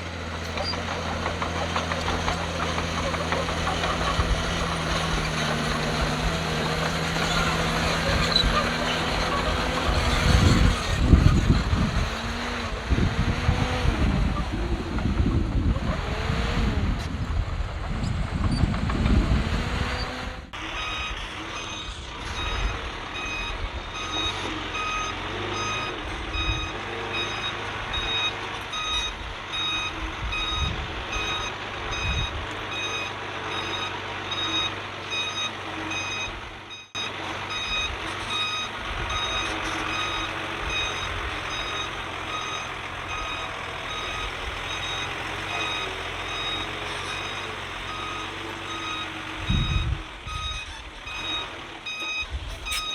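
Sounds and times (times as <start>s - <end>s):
diesel engine running: 0.0s - 52.9s
backup alarm beeping: 20.7s - 52.9s.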